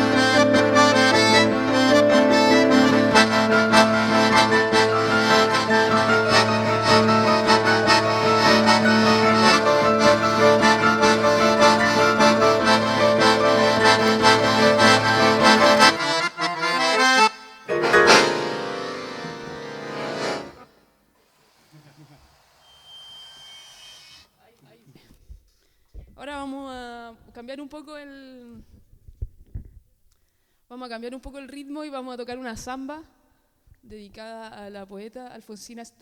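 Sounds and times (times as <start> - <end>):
electronic keyboard playing tango: 0.0 - 20.8.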